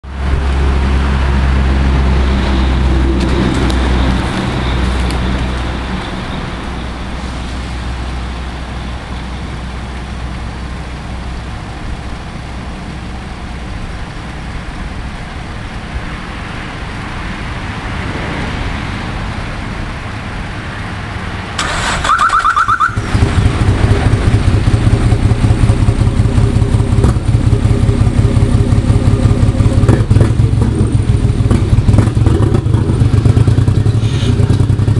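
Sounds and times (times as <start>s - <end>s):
car engine running unevenly: 23.0s - 34.9s.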